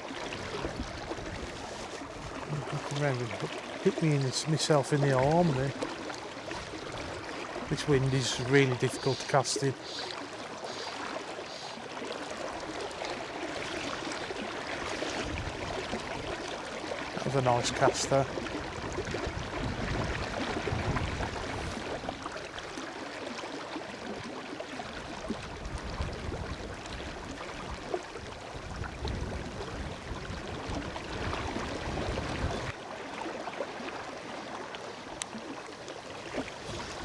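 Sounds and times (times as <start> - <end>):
river water running: 0.0 - 37.0
wind buffeting microphone: 0.4 - 3.1, 15.1 - 16.4, 18.6 - 22.2, 25.4 - 27.4, 28.5 - 32.7.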